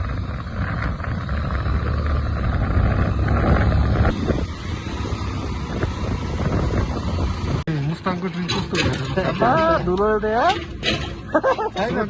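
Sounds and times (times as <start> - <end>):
wind buffeting microphone: 0.0 - 7.6
low engine rumble: 0.0 - 12.0.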